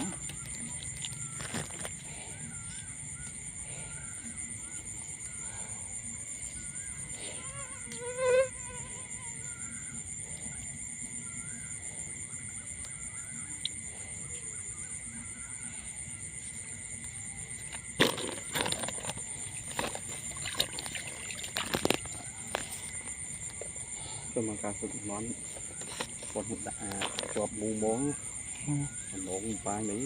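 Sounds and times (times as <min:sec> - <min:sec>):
insect chorus drone: 0:00.0 - 0:30.0
knocks and splashy handling: 0:17.7 - 0:23.0.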